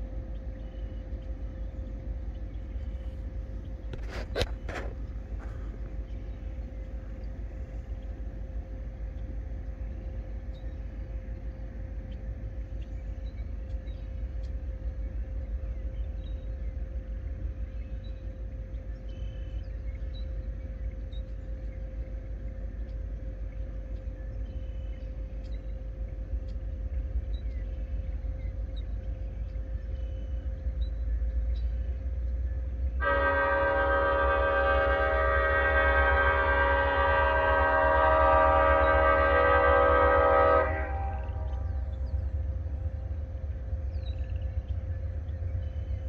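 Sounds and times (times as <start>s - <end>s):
distant freight train rumble: 0.0s - 46.0s
locomotive horn: 33.0s - 42.0s.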